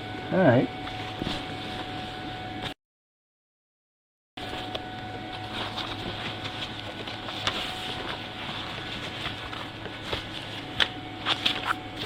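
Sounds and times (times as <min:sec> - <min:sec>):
background hum and hiss: 0:00.0 - 0:02.8, 0:04.4 - 0:12.0
faint clicks and rustles: 0:05.4 - 0:11.8.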